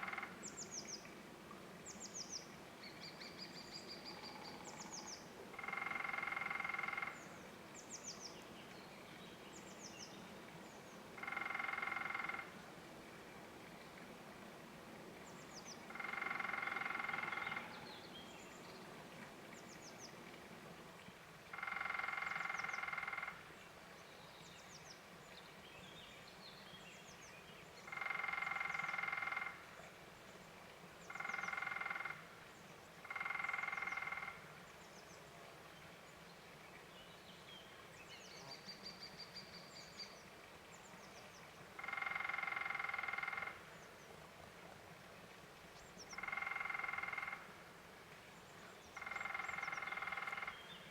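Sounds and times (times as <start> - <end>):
woodpecker drumming: 0.0 - 0.4, 5.6 - 7.2, 11.2 - 12.5, 15.9 - 17.7, 21.5 - 23.4, 27.9 - 29.5, 31.1 - 32.2, 33.0 - 34.4, 41.8 - 43.6, 46.2 - 47.5, 49.0 - 50.6.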